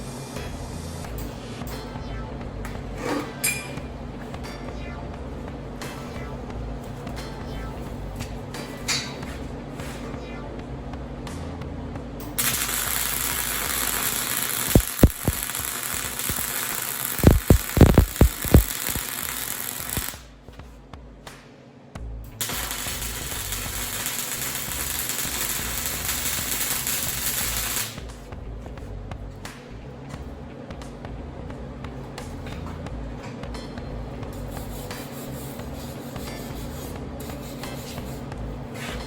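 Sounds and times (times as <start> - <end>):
sharp low thumps: 1.9 - 3.0, 14.8 - 15.4, 28.0 - 34.4
welding arc frying: 12.2 - 20.3, 22.3 - 28.2, 34.1 - 39.0.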